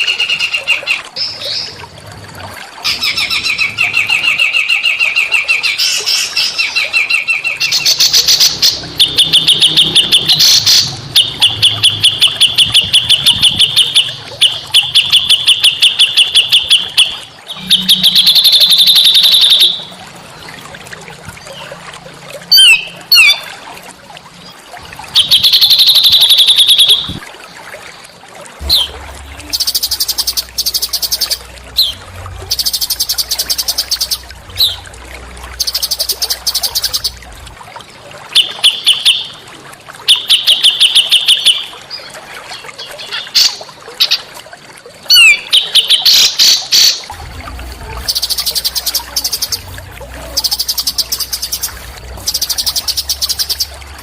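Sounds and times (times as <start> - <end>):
songbirds trilling: 2.8 - 20.0, 28.6 - 37.5, 45.1 - 54.0.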